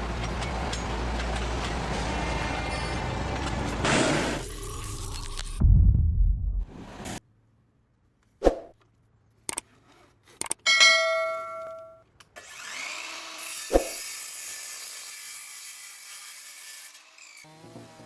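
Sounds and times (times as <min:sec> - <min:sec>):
metallic clang ringing: 0:10.7 - 0:12.0.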